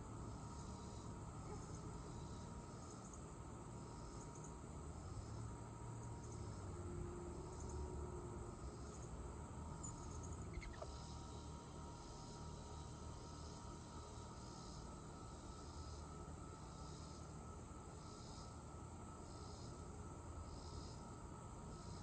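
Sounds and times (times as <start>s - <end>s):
insects trilling: 0.0s - 22.0s
faint bird chirps: 9.8s - 11.2s.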